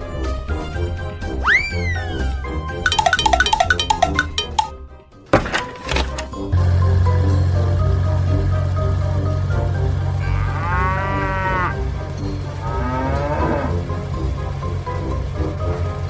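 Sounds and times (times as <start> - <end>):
background music with low drone: 0.0 - 16.0
cow mooing: 10.1 - 14.0.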